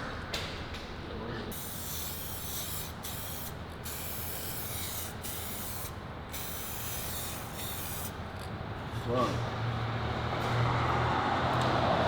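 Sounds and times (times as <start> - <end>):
spray paint can hissing: 1.5 - 8.2.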